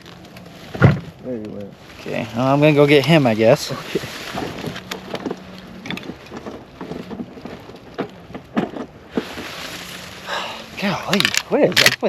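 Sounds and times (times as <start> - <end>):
small knocks: 4.4 - 10.0
water splashing: 9.1 - 11.4.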